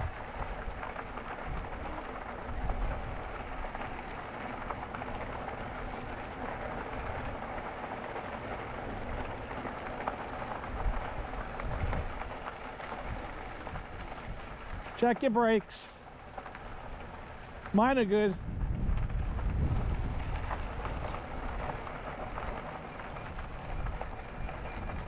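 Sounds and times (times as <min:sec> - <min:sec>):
wind buffeting microphone: 0:00.0 - 0:04.0, 0:10.5 - 0:15.0, 0:16.6 - 0:25.0
tyres rolling on gravel: 0:00.0 - 0:25.0.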